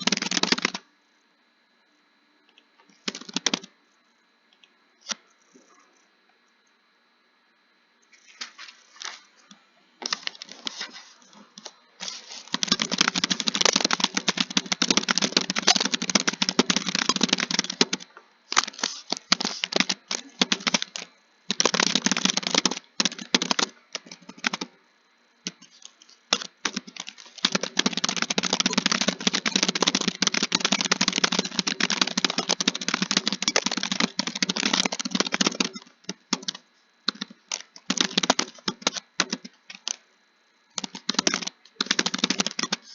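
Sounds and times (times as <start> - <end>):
keyboard typing fast: 0.0 - 0.8, 3.0 - 3.7, 12.0 - 24.8, 25.5 - 40.0, 40.8 - 42.9.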